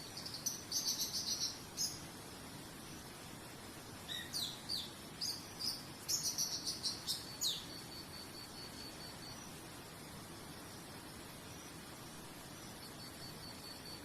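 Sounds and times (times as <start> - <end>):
songbird whistling song: 0.0 - 2.0, 4.0 - 9.6
background hiss: 0.0 - 14.0
faint pulsed high chirping: 0.0 - 14.0.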